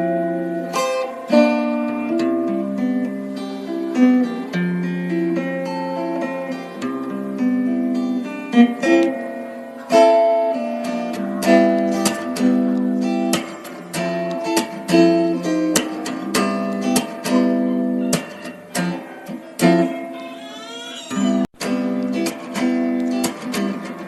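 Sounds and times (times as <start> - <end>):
acoustic guitar picking: 0.0 - 24.0.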